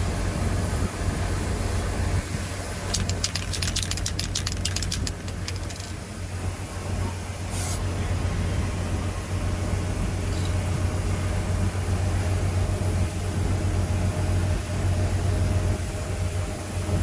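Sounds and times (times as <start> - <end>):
steady low hum: 0.0 - 17.0
aerosol can ball rattling: 2.7 - 6.1.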